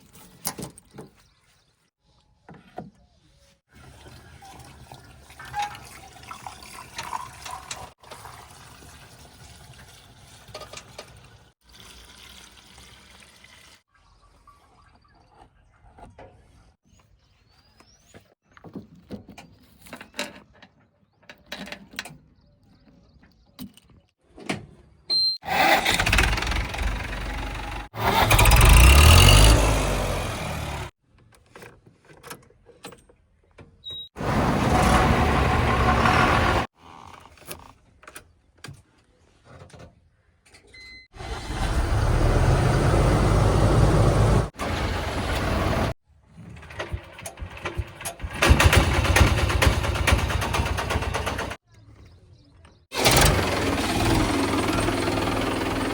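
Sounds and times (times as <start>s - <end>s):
engine revving: 25.5s - 30.9s, 34.2s - 36.7s, 41.2s - 46.0s, 53.0s - 55.9s
heavy machinery engines running: 25.5s - 30.9s, 34.2s - 36.7s, 41.2s - 46.0s, 53.0s - 55.9s.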